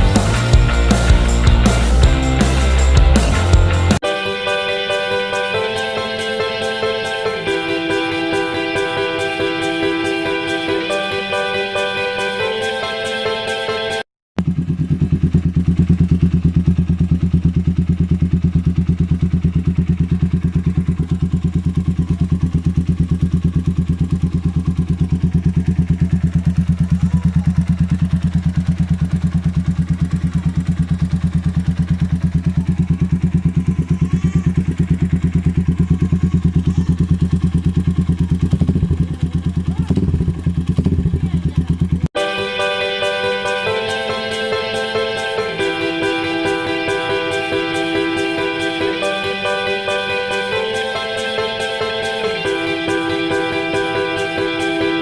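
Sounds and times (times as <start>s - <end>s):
motorcycle engine idling: 0.0s - 4.0s, 14.4s - 42.1s.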